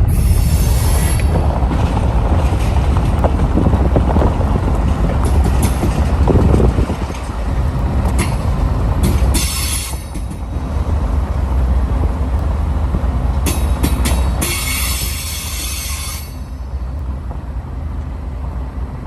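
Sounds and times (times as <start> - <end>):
freight train wheels rumbling: 0.0 - 19.0
wheel clicks over rail joints: 1.0 - 10.6.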